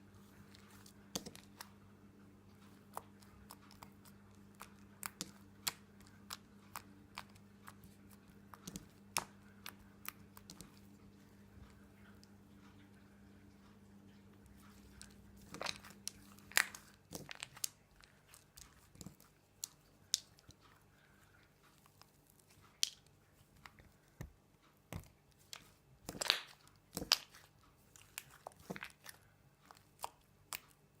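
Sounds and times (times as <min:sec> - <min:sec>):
slime popping and crackling: 0:02.9 - 0:10.8, 0:15.0 - 0:20.6, 0:24.9 - 0:31.0.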